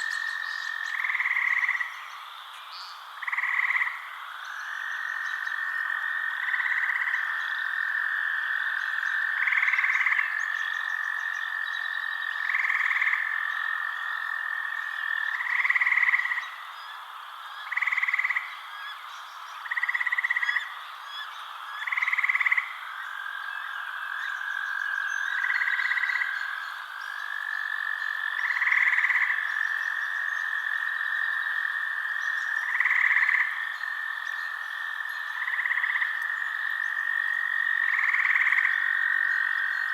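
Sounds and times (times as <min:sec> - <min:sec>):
frogs calling: 0:00.0 - 0:39.9.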